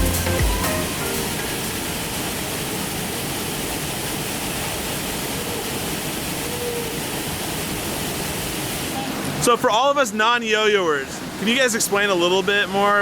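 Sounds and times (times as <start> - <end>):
waterfall pouring: 0.0 - 13.0.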